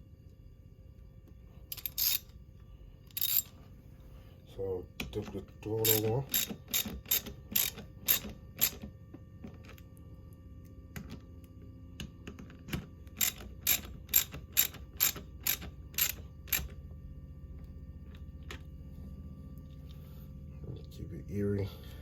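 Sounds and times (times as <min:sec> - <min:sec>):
ratchet wrench clicking: 0:01.7 - 0:02.3, 0:03.1 - 0:03.5, 0:05.8 - 0:08.8, 0:13.2 - 0:16.7.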